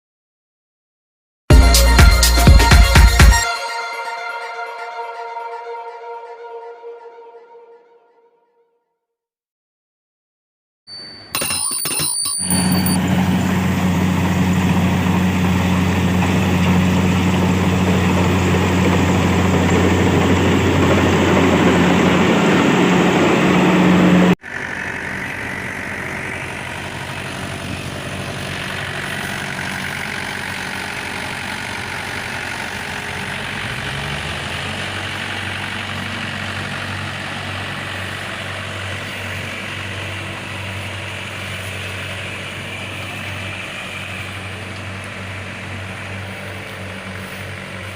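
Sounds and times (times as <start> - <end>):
tractor diesel engine running: 12.3 - 47.9.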